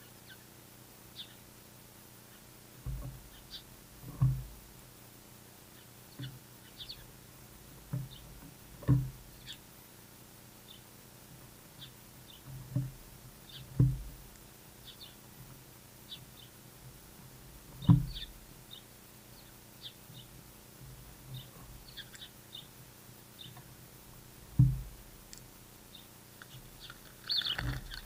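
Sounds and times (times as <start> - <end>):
small birds chirping: 0.0 - 9.8, 10.5 - 28.0
dull low thumps: 24.2 - 25.2.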